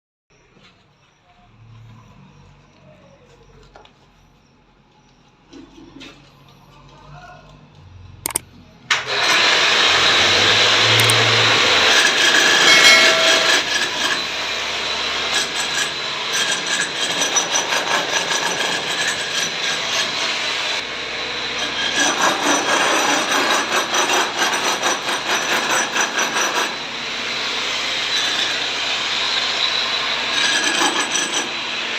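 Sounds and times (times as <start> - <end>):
saw rasping through plastic pipe: 21.6 - 26.8.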